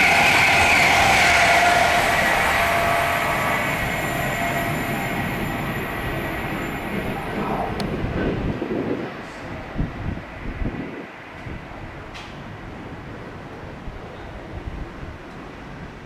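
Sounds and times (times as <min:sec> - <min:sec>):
high ringing tone from train: 0:00.0 - 0:07.8
train rumbling past: 0:00.0 - 0:16.0.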